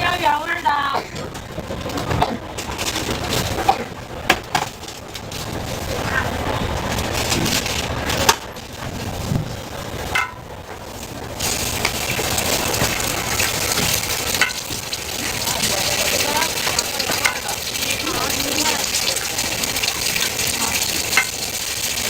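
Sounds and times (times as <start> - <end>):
food sizzling in a pan: 9.9 - 22.0
cooking utensils clicking: 10.0 - 22.0.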